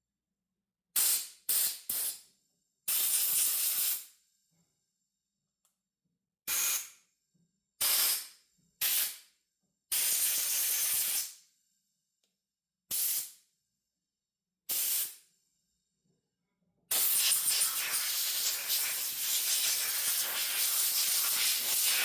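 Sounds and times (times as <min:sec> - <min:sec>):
compressed air blow gun hissing: 0:16.9 - 0:22.0.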